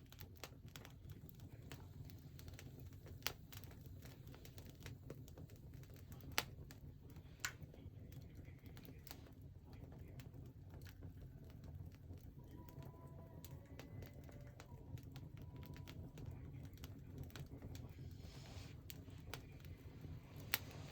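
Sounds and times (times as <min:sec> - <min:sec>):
wood fire crackling: 0:00.0 - 0:20.9
low steady rumble: 0:11.2 - 0:20.9.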